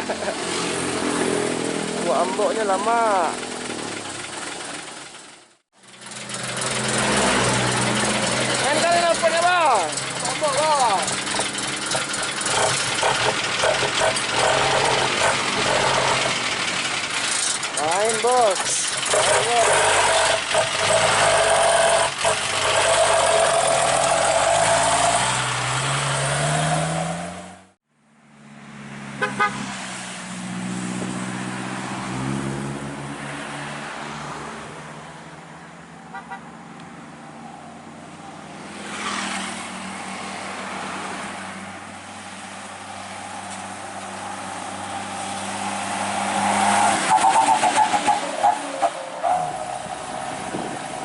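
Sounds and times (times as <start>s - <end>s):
truck engine revving: 0.0s - 27.8s, 38.5s - 51.0s.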